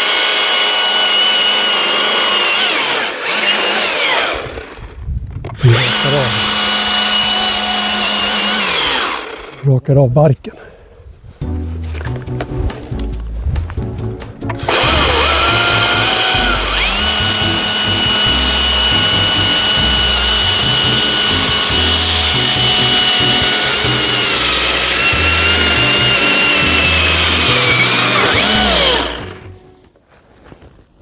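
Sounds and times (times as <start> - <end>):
chainsaw cutting wood: 0.0 - 9.7, 14.6 - 29.6.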